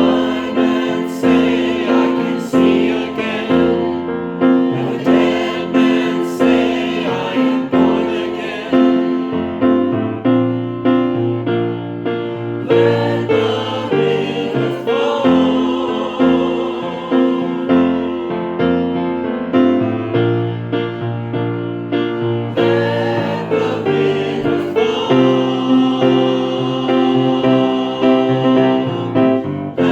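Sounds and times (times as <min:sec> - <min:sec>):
choir singing: 0:00.0 - 0:09.8, 0:12.6 - 0:19.0, 0:22.5 - 0:29.9
piano chords: 0:00.0 - 0:29.9.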